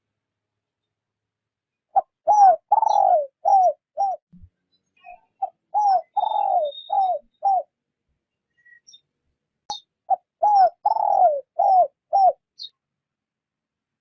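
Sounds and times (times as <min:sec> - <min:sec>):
dove cooing: 0:01.9 - 0:04.2, 0:05.4 - 0:07.7, 0:10.1 - 0:12.4.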